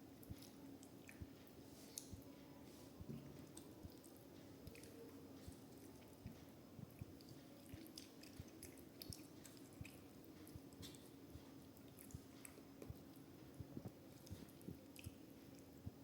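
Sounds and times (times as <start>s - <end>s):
faint steady hum: 0.0s - 16.0s
person chewing food: 0.2s - 2.3s, 3.2s - 15.7s
wet mouth clicks and smacks: 6.9s - 11.1s.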